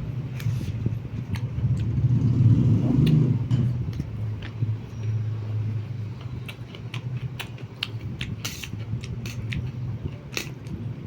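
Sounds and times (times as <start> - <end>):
low steady rumble: 0.0 - 11.0
person chewing crunchy food: 6.0 - 10.9.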